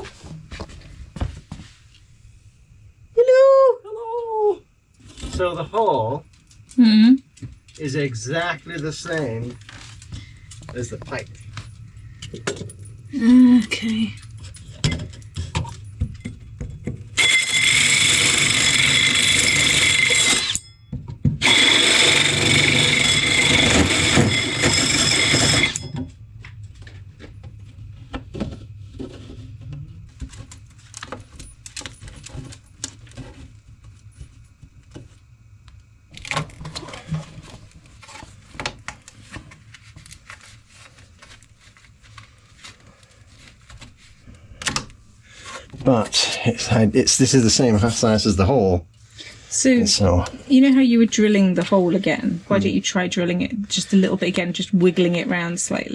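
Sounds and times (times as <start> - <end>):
power drill running: 17.2 - 20.6, 21.4 - 25.9.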